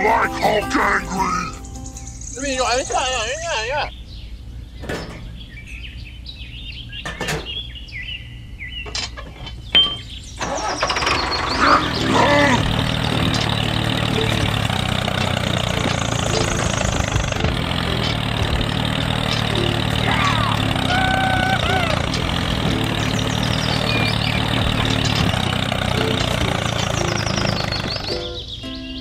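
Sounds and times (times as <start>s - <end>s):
clicks and knocks: 4.8s - 5.5s, 7.0s - 7.6s, 8.9s - 11.0s, 12.0s - 20.0s, 22.0s - 28.1s
small motor running: 10.6s - 28.1s.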